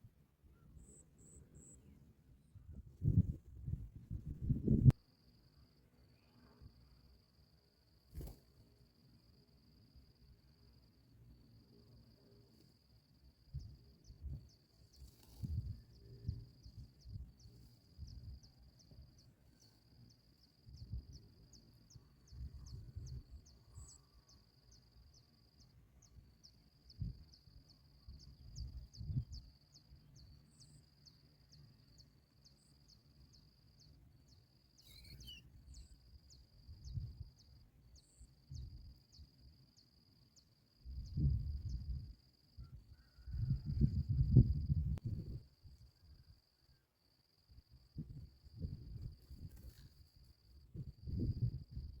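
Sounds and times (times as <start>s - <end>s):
insect trilling: 34.7s - 36.4s.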